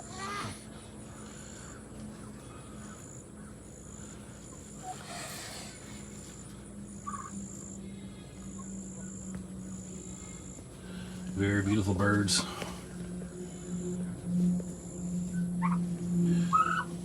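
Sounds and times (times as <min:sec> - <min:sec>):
insects trilling: 0:00.0 - 0:17.0
low steady hum: 0:00.0 - 0:17.0
soft bird calls: 0:00.2 - 0:11.8.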